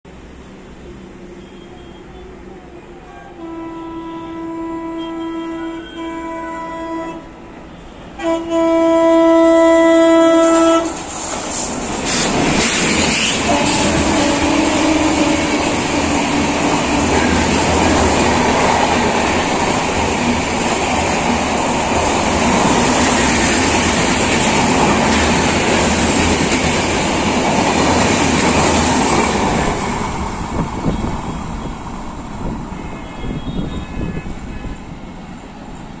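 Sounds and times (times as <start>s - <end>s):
train horn blasts: 1.3s - 11.1s, 13.1s - 18.0s, 32.7s - 35.0s
train wheels rushing over rails: 10.2s - 36.0s.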